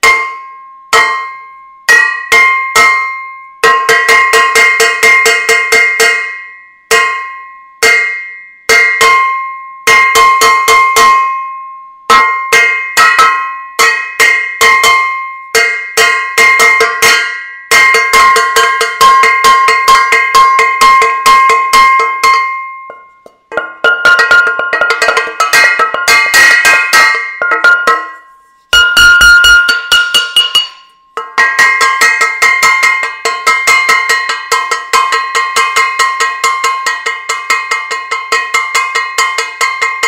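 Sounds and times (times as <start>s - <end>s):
metal saucepan being banged: 12.1s - 40.0s.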